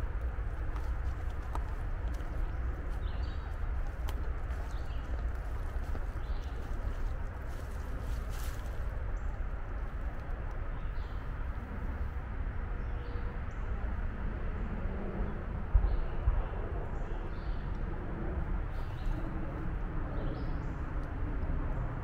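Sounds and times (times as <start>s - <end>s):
songbird chirps: 0.0s - 11.5s, 18.7s - 21.0s
steady low rumble: 0.0s - 22.0s.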